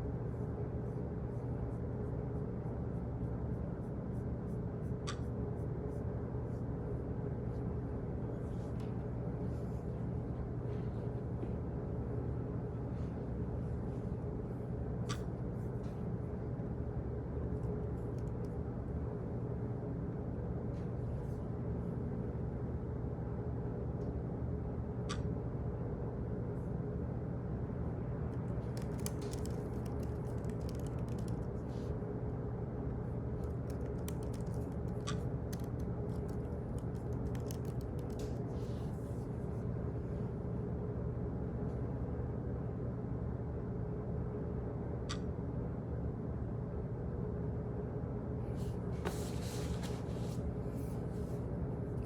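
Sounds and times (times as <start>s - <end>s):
low hum of room machinery: 0.0s - 52.0s.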